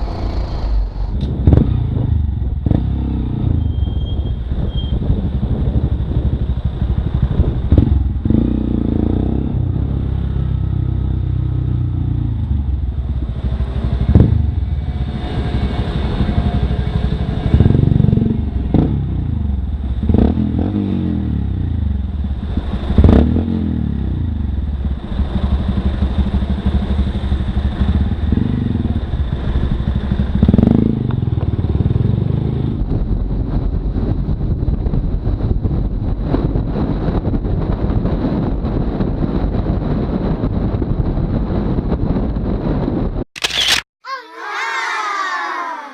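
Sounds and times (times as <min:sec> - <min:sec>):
motorcycle engine revving: 0:00.0 - 0:33.5.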